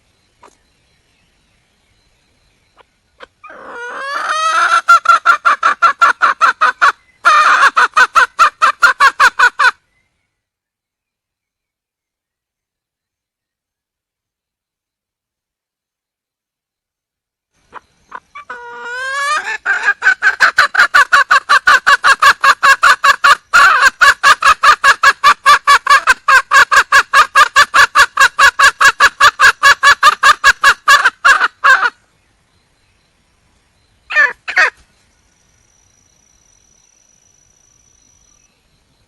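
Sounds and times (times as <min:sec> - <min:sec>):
hen calling: 0:02.7 - 0:09.8, 0:17.6 - 0:32.0, 0:34.1 - 0:34.8
hen clucking: 0:02.8 - 0:09.8, 0:17.7 - 0:32.0, 0:34.1 - 0:34.8.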